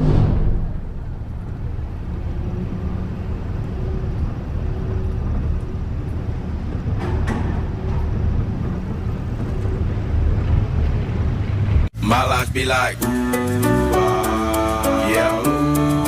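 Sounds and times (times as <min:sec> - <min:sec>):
engine low rumble: 0:00.0 - 0:16.0.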